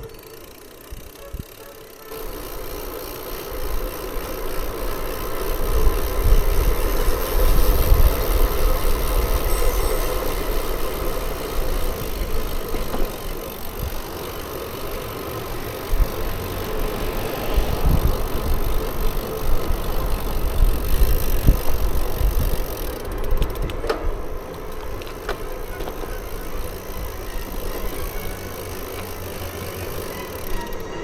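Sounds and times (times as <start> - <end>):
bicycle tyre and road noise: 0.0 - 31.0
wind buffeting microphone: 3.5 - 14.2, 15.7 - 28.4
sharp clicks or rattles: 22.3 - 31.0.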